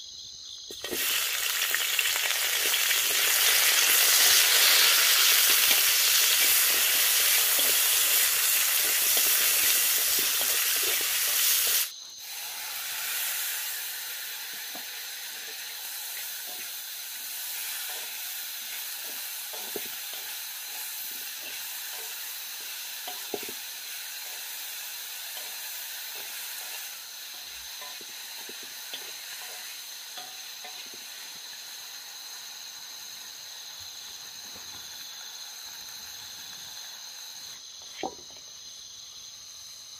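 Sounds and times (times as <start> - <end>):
food sizzling in a pan: 0.0 - 39.9
high insect drone: 0.0 - 39.9.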